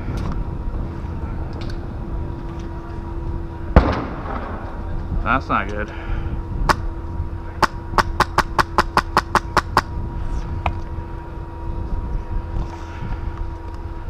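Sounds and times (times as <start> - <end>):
airsoft rifle shots: 3.8 - 4.5.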